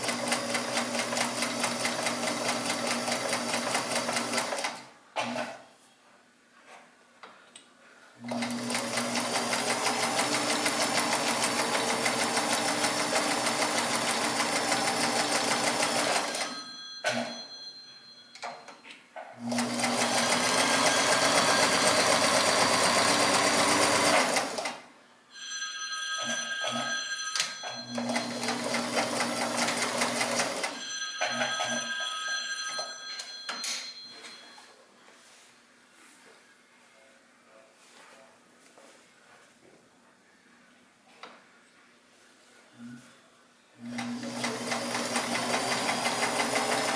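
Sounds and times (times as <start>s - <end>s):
sewing machine stitching: 0.0s - 5.6s, 8.2s - 16.6s, 19.4s - 24.8s, 27.9s - 30.8s, 43.8s - 46.9s.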